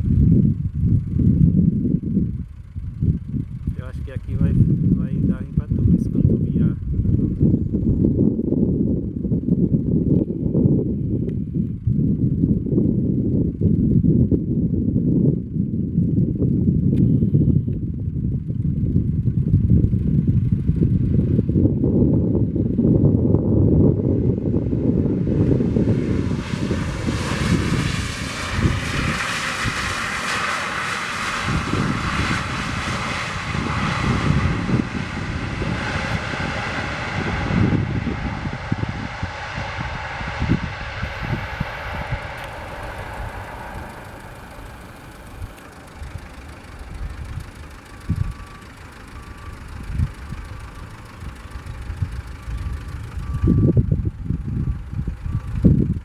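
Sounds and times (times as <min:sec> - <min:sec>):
wind buffeting microphone: 0:00.0 - 0:56.0
jet engines roaring: 0:03.6 - 0:07.5, 0:23.8 - 0:55.8.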